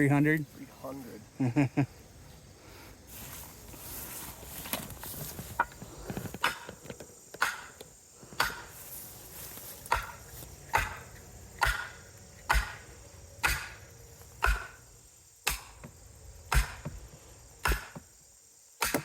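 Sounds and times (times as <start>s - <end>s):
hammer striking wood: 7.4s - 7.8s, 8.4s - 8.7s, 9.9s - 11.0s, 11.6s - 12.8s, 13.4s - 13.8s, 14.4s - 14.8s, 15.4s - 15.9s, 16.5s - 17.0s, 17.6s - 18.0s, 18.8s - 19.0s.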